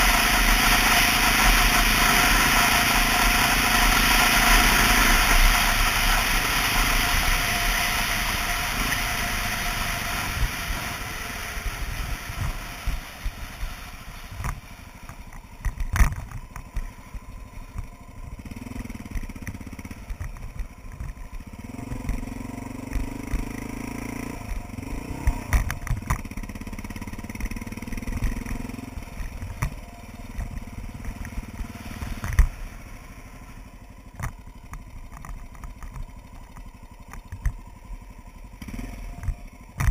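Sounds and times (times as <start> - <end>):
motorcycle engine: 0.0 - 39.9
wind noise: 9.9 - 14.6.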